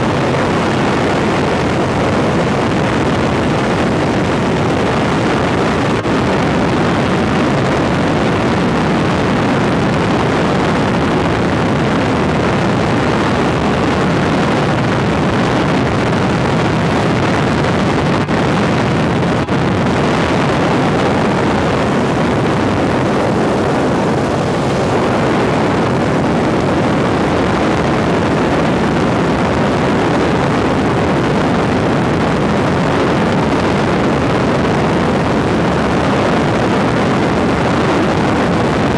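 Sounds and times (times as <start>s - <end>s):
helicopter engine and rotor drone: 10.0s - 32.1s.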